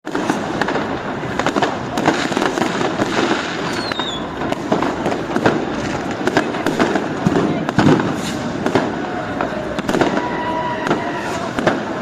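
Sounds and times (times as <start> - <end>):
firecrackers banging: 0.1 - 12.0
falling whistle: 3.7 - 4.3.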